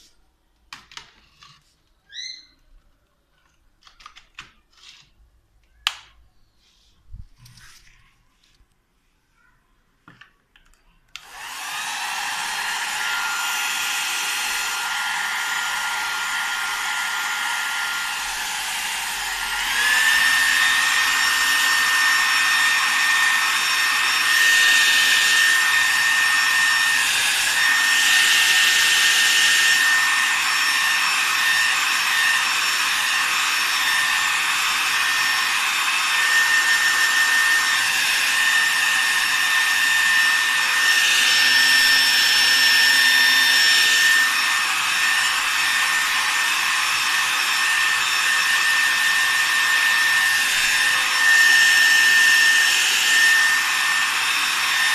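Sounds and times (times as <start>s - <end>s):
hair dryer motor whine: 11.2s - 54.9s.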